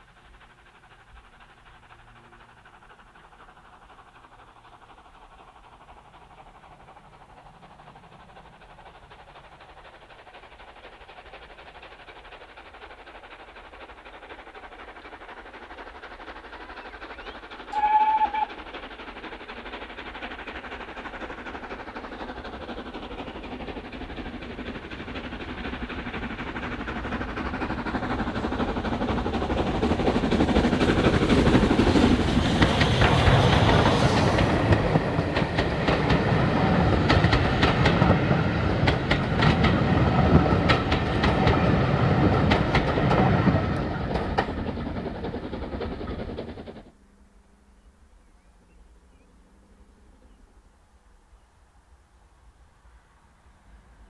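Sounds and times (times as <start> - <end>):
train approaching: 0.0 - 54.0
train whistle blast: 17.7 - 18.6.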